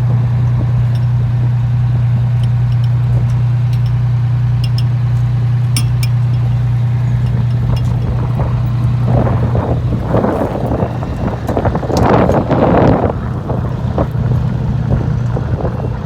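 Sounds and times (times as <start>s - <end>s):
fire engine idling: 0.0s - 16.0s
wind gusts on microphone: 6.5s - 16.0s.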